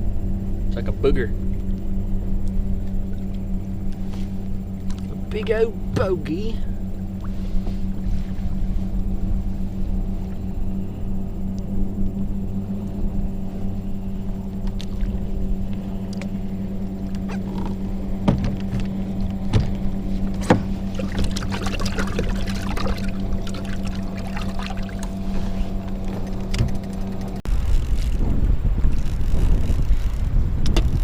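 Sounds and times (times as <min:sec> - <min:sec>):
steady low hum: 0:00.0 - 0:31.0
sharp knocks: 0:17.5 - 0:18.9
water splashing and trickling: 0:18.3 - 0:27.4.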